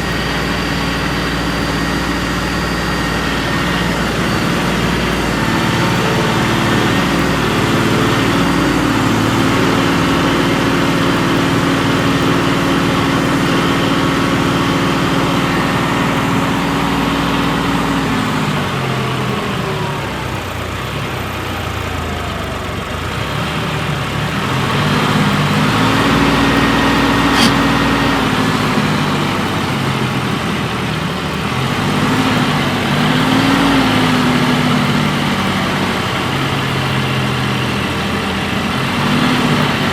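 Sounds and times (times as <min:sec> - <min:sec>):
heavy diesel engine revving: 0:00.0 - 0:39.9
sharp click: 0:27.2 - 0:27.7.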